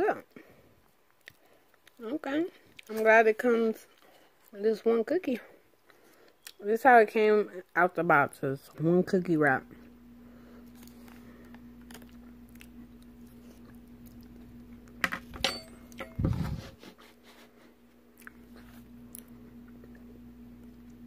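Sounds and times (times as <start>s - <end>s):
steady low hum: 0.2s - 21.0s
person chewing a cookie: 0.8s - 2.0s, 3.8s - 4.6s, 5.7s - 6.6s, 10.2s - 15.0s, 17.7s - 21.0s.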